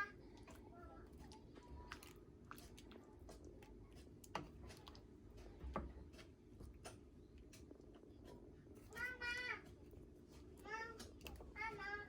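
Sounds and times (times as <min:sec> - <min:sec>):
low room hum: 0:00.0 - 0:12.0
small clicks and taps: 0:04.2 - 0:08.4.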